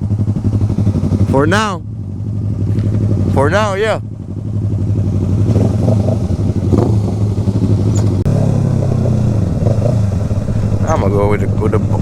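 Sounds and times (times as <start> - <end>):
motorcycle engine running: 0.0 - 12.0
wind noise on microphone: 5.5 - 12.0.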